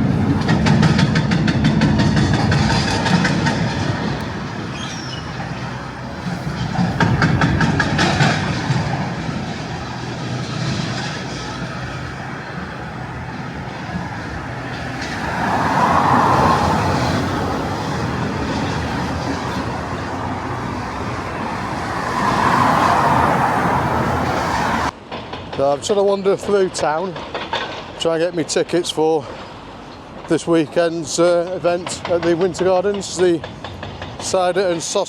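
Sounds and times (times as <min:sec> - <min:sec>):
vehicles passing: 0:00.0 - 0:25.1
street traffic road noise: 0:00.0 - 0:35.0.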